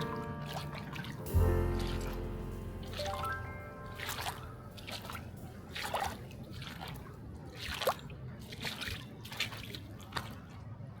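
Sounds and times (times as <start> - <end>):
footsteps on wet sand: 0.0 - 10.5.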